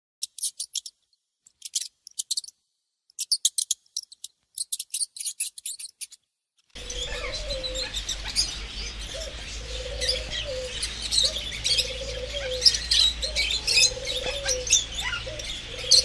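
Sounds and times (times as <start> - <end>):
birds chirping: 3.2 - 16.0
low rising and falling bird call: 6.8 - 16.0.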